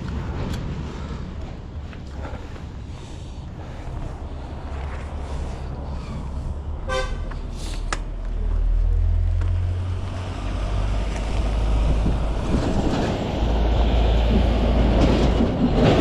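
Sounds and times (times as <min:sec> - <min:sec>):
road traffic rumble: 0:00.0 - 0:16.0
vehicle horn toot: 0:06.9 - 0:07.3.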